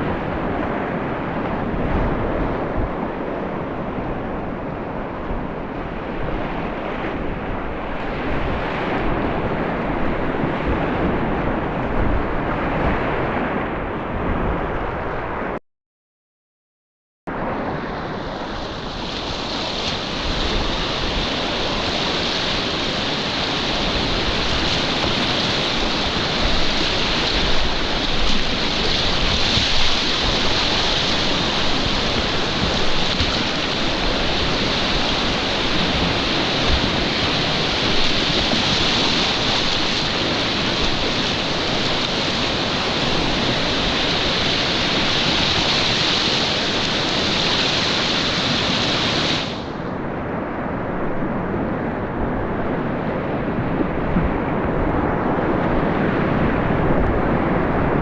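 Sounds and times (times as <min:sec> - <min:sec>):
whitewater rapids rushing: 0:17.9 - 0:49.9
water splashing: 0:18.6 - 0:49.7.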